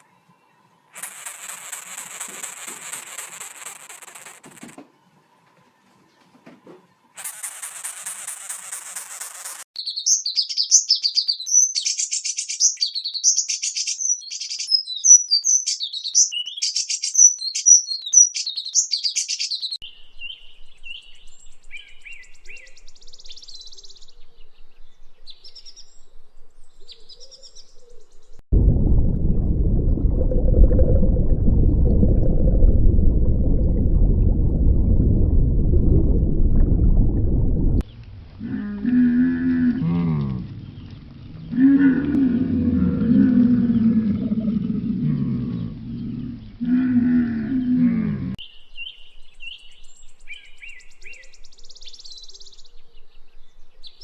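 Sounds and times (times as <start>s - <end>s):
small birds chirping: 5.0s - 28.4s, 43.2s - 54.0s
loud low rumbling noise: 28.5s - 38.4s.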